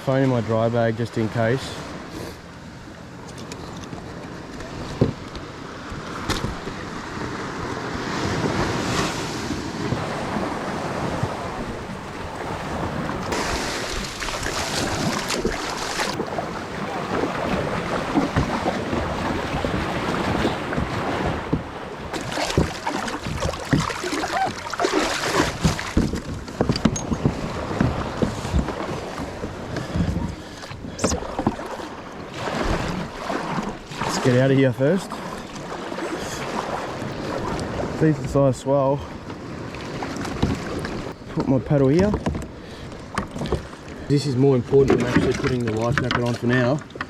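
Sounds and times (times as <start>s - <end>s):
waves washing onto shore: 0.0s - 47.0s
wind noise on microphone: 25.2s - 31.6s.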